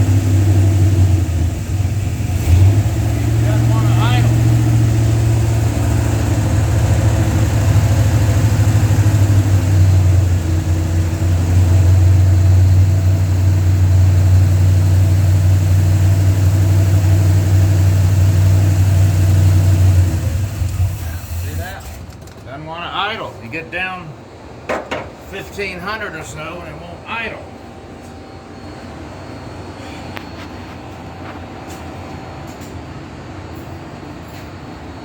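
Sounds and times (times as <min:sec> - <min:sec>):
engine idling: 0:00.0 - 0:23.2.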